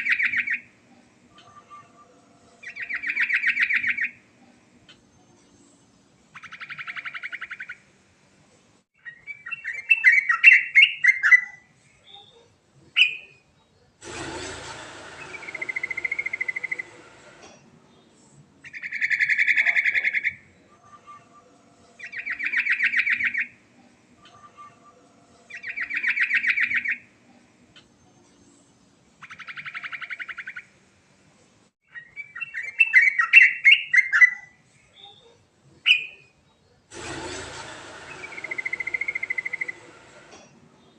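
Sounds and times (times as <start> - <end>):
brief rushing noise: 14.0 - 19.4, 36.9 - 40.9.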